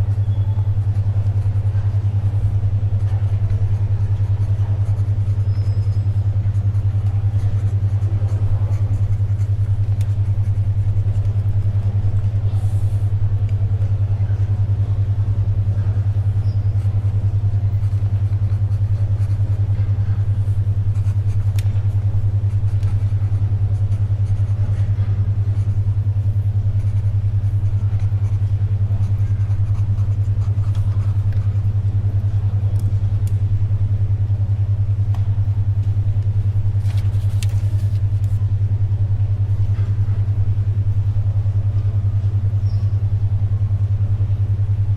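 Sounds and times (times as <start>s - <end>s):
pencil writing: 0.1s - 12.9s, 16.2s - 25.8s, 26.6s - 31.6s, 36.8s - 38.4s
paper rustling: 36.8s - 38.4s.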